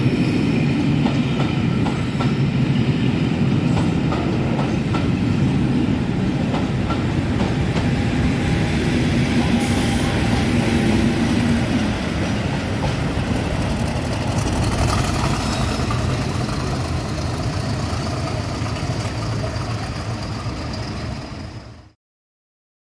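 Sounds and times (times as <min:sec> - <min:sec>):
diesel train rumbling past: 0:00.0 - 0:22.0
wheels clicking over rail joints: 0:11.8 - 0:21.7.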